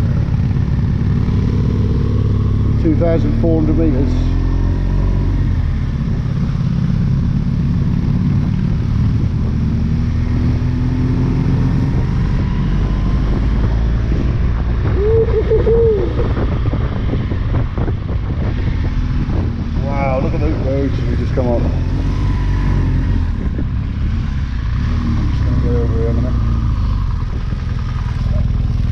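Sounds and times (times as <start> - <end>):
wind noise on microphone: 4.7 - 28.9
motorcycle engine under load: 22.6 - 28.9.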